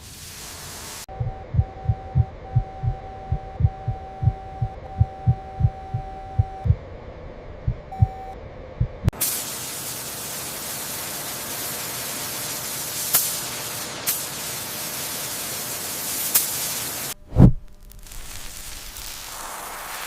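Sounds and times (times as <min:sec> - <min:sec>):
steady hiss: 0:00.0 - 0:01.1, 0:09.2 - 0:20.0.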